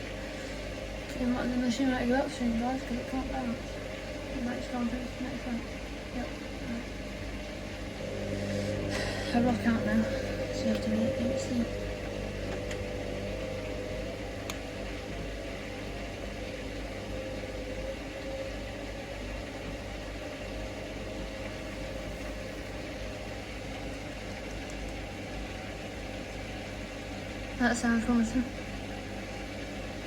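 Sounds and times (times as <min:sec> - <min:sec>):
washing machine motor humming: 0:00.0 - 0:30.0.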